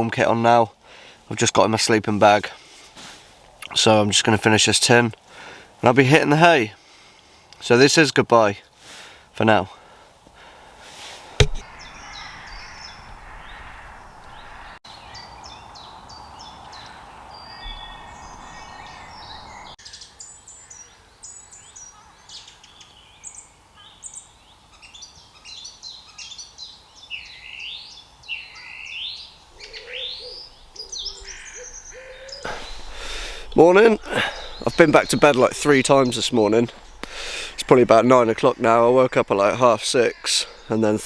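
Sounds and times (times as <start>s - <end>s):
birds chirping and whistling: 11.6s - 23.4s, 27.1s - 41.0s
swooping bird calls: 11.6s - 41.0s
faint steady hiss: 29.3s - 41.0s
owl hooting: 29.5s - 40.8s.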